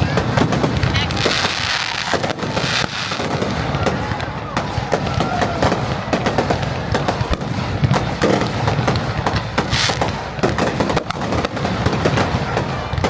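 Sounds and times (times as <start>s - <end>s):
fireworks crackling and popping: 0.0s - 13.0s.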